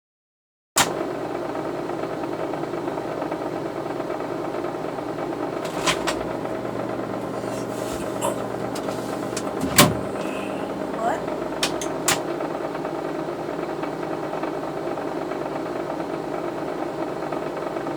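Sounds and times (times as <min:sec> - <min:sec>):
mechanical hum: 0:00.8 - 0:17.9
sharp clicks: 0:11.6 - 0:12.3.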